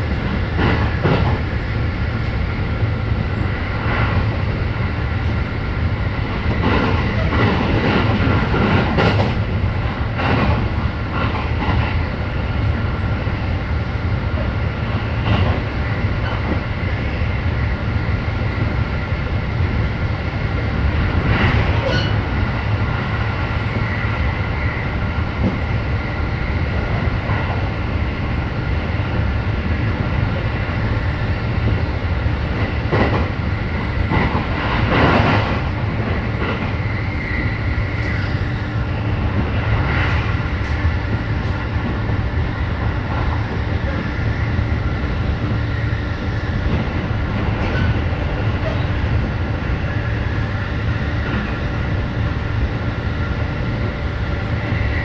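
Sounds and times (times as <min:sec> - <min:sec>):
train clattering: 0:00.0 - 0:13.4, 0:14.1 - 0:17.1, 0:17.8 - 0:55.0
train wheels rumbling on rail: 0:00.0 - 0:55.0.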